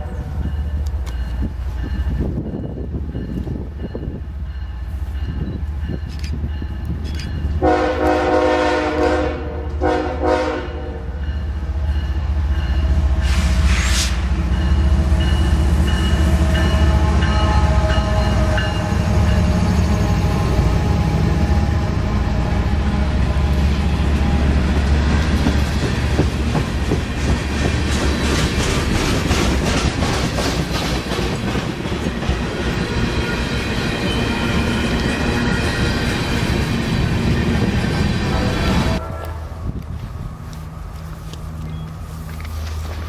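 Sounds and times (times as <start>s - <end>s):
train wheels clicking over rail joints: 5.2s - 7.6s, 23.5s - 37.8s
locomotive engine drone: 9.4s - 30.3s, 31.3s - 43.0s.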